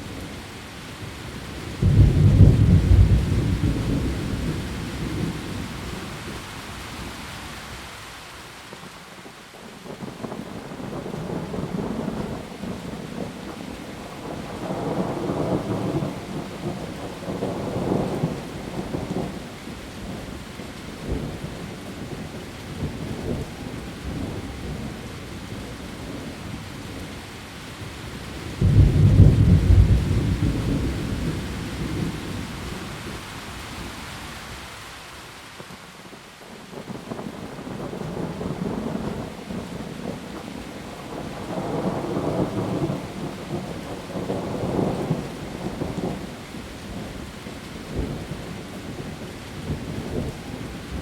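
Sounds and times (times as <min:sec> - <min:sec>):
heavy rain: 0:00.0 - 0:51.0
loud thunderclap: 0:01.8 - 0:05.4, 0:28.6 - 0:32.4
thunder rumbling: 0:01.8 - 0:06.4, 0:28.4 - 0:33.2, 0:36.8 - 0:46.2.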